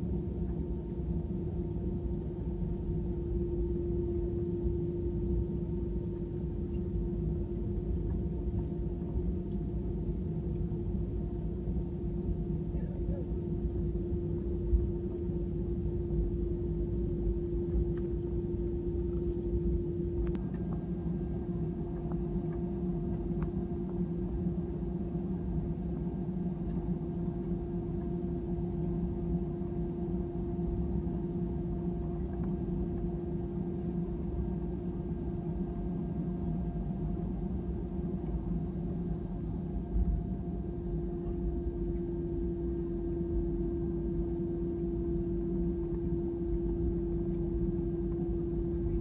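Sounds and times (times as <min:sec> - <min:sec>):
steady hum: 0:00.0 - 0:49.0
airliner cabin rumble: 0:04.2 - 0:49.0.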